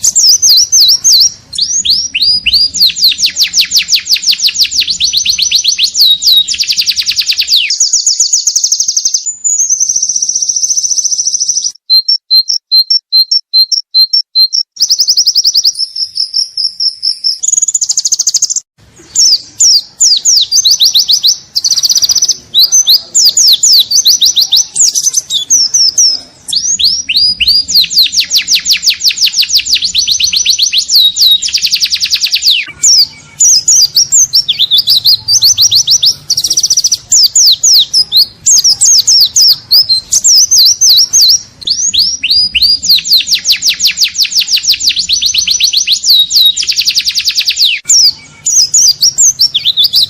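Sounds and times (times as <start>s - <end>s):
bird singing chirps and trills: 0.0s - 50.0s.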